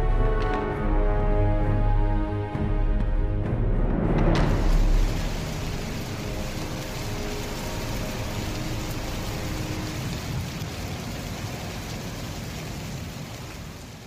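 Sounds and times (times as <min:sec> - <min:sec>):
heavy rain falling: 0:03.4 - 0:14.0.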